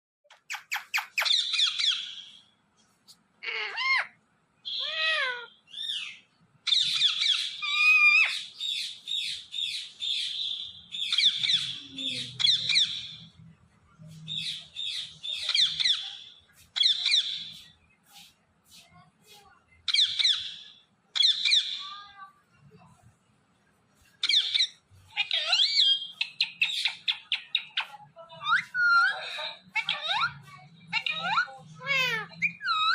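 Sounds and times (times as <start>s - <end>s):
parrot chirping and squawking: 0.3s - 2.4s, 3.4s - 13.3s, 14.3s - 17.7s, 19.9s - 21.9s, 24.2s - 32.9s.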